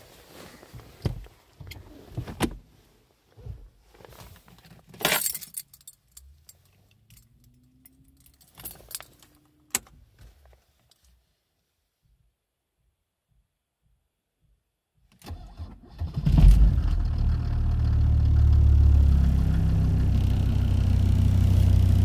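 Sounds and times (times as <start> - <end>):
car keys jangling: 5.0 - 9.4.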